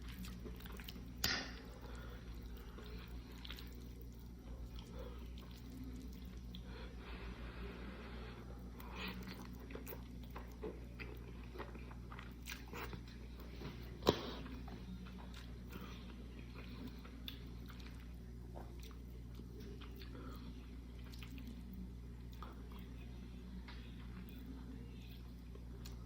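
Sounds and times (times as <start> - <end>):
chewing and biting food: 0.0 - 1.2, 1.8 - 6.7, 8.8 - 22.9
steady low hum: 0.0 - 26.0.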